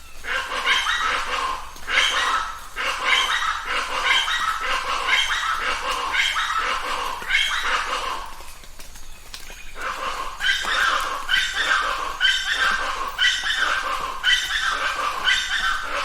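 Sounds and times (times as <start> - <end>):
birds calling harshly in chorus: 0.0 - 16.0.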